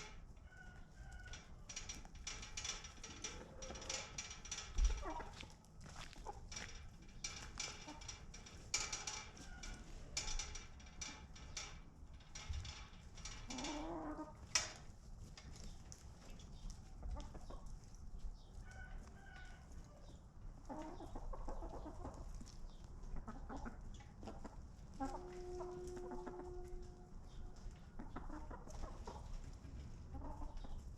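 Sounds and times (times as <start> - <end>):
chickens clucking: 0.0 - 2.2, 2.8 - 8.7, 13.4 - 30.9
scratchy clicks and rustles: 0.0 - 19.5.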